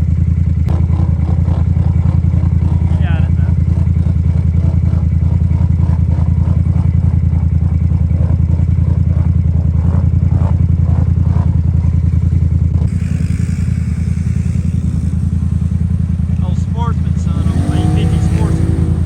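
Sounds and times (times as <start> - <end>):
off-road vehicle engine running: 0.0 - 19.0
hiss: 12.9 - 16.4.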